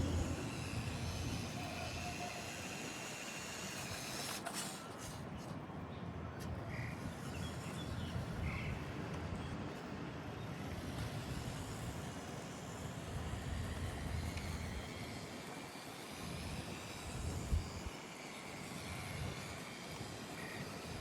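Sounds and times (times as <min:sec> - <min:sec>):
toy car motor rumbling: 0:00.0 - 0:04.8, 0:10.6 - 0:21.0.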